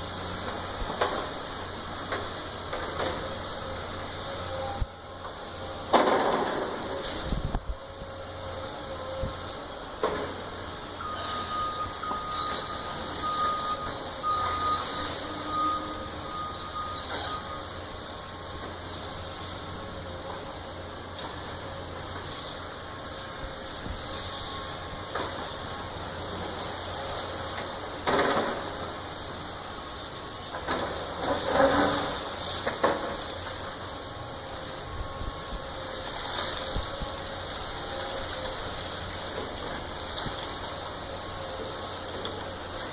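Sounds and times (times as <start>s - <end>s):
diesel engine running: 0.0s - 42.9s
structure crashing and debris falling: 5.9s - 6.9s
back-up alarm beeping: 11.0s - 17.8s.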